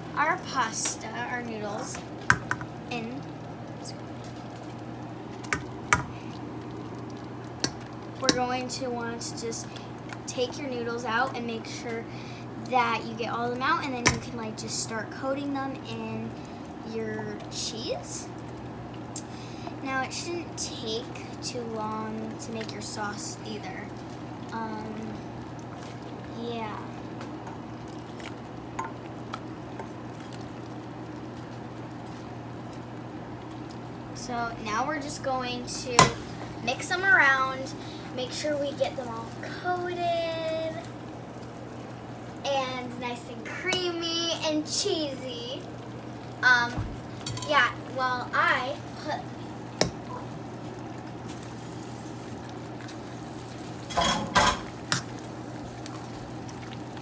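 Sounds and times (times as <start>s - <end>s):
dishes and utensil clinking: 53.9s - 55.1s.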